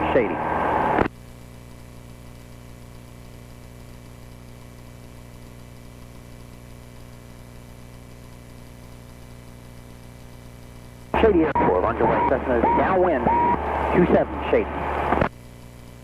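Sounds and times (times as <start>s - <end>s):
airplane engine drone: 0.0s - 1.1s, 11.2s - 15.3s
intercom hiss: 0.0s - 1.1s, 11.1s - 15.3s.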